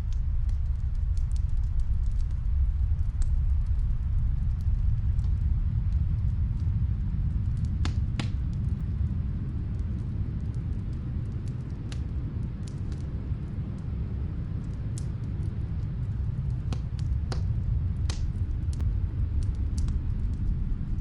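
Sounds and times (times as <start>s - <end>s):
fire pops: 0.0s - 13.9s, 14.5s - 21.0s
snowstorm wind rumble: 0.0s - 21.0s
wood fire crackling: 0.0s - 21.0s.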